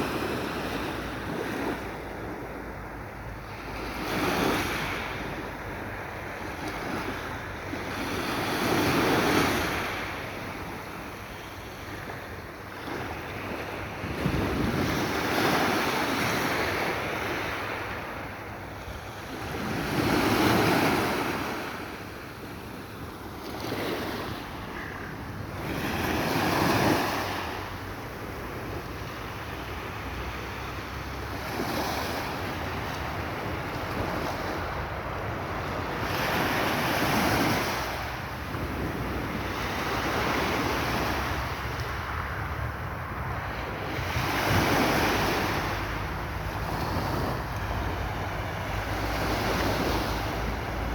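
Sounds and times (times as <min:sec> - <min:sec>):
sea waves breaking on shore: 0:00.0 - 0:50.9
wind on microphone: 0:13.0 - 0:18.2, 0:31.2 - 0:50.9.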